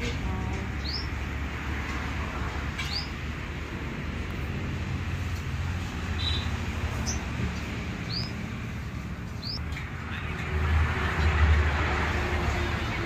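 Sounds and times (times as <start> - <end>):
bird chirping: 0.8 - 1.2, 2.8 - 3.2, 6.2 - 8.5, 9.3 - 9.8.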